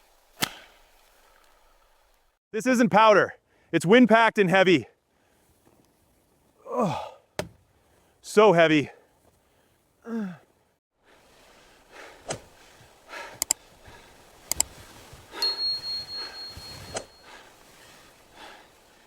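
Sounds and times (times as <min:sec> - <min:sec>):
person grunting: 0:06.6 - 0:07.2, 0:10.1 - 0:10.4
sharp clicks: 0:13.4 - 0:13.6, 0:14.4 - 0:14.7
thin high ring: 0:15.4 - 0:17.4.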